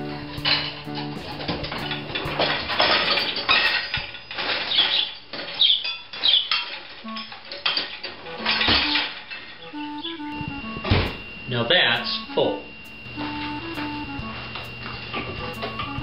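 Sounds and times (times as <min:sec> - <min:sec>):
dishes and cutlery clinking: 0:00.1 - 0:09.8.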